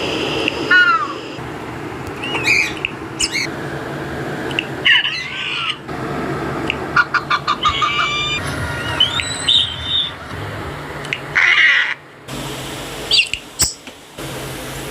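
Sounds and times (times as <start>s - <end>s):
bird squawking: 0.7s - 1.4s, 2.2s - 3.5s, 4.6s - 5.9s, 6.9s - 10.3s, 11.2s - 12.0s, 13.1s - 13.8s.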